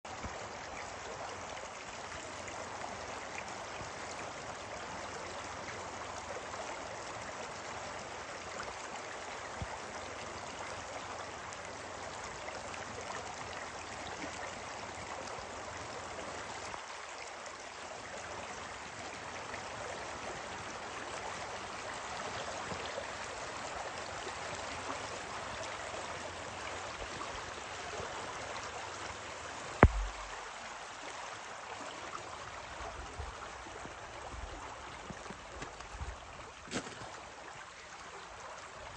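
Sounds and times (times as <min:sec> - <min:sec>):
stream water babbling: 0:00.1 - 0:38.9
sharp knock: 0:29.8 - 0:30.4.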